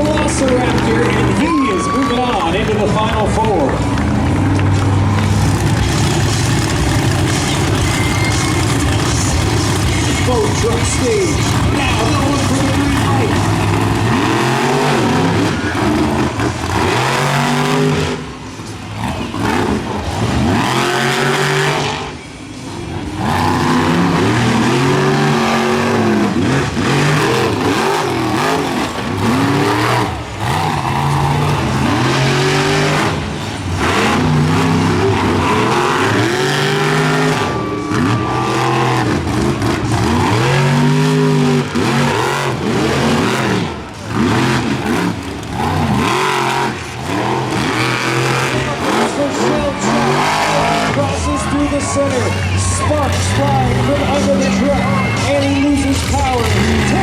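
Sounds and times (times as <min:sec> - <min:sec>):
monster truck engines revving: 0:00.0 - 0:57.0.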